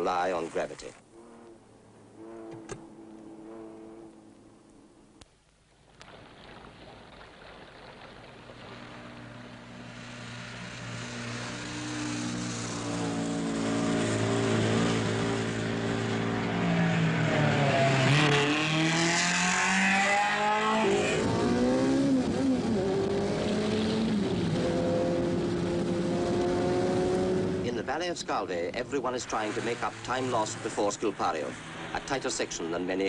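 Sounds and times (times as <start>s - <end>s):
rally car engine revving: 1.0s - 4.6s, 10.6s - 28.0s, 28.7s - 33.0s.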